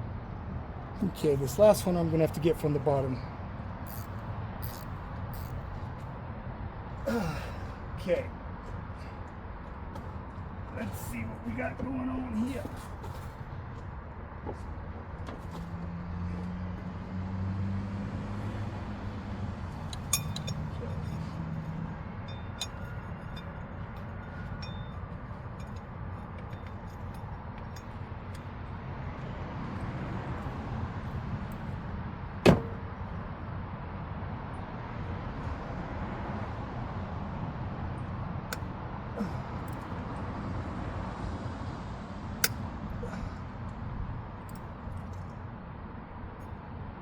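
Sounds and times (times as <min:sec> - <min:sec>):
metallic clink of hand tool: 0:03.9 - 0:05.6, 0:20.0 - 0:21.6, 0:22.2 - 0:27.3.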